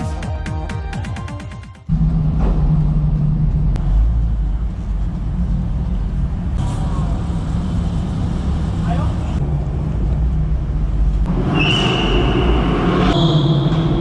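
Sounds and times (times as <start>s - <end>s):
electronic music: 0.0s - 1.9s
car engine exhaust rumble: 1.9s - 14.0s.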